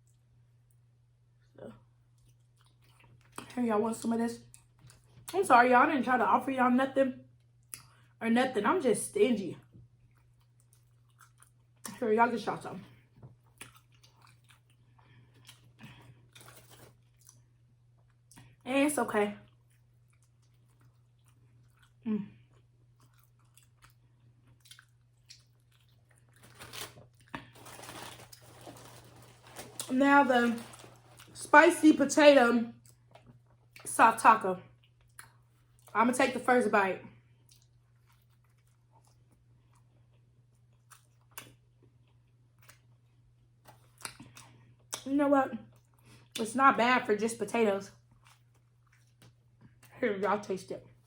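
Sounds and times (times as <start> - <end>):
low steady hum: 0.0 - 51.0
close-up chewing: 2.0 - 3.5, 9.7 - 11.9, 13.0 - 18.6, 19.4 - 31.4, 37.4 - 46.4, 47.9 - 50.0
faint chewing mouth clicks: 19.5 - 26.3.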